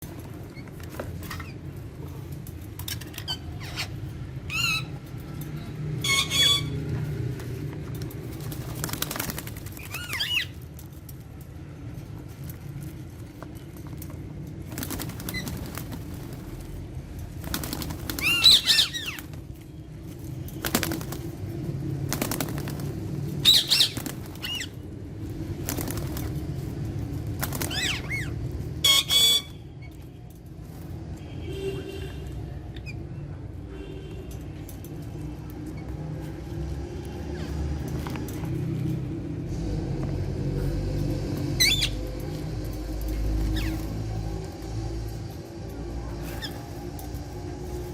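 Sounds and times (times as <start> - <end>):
parakeets squawking: 3.0 - 5.1, 6.0 - 6.8, 9.8 - 10.6, 17.9 - 19.3, 23.4 - 24.8, 27.4 - 29.6, 41.6 - 42.1, 43.4 - 43.9.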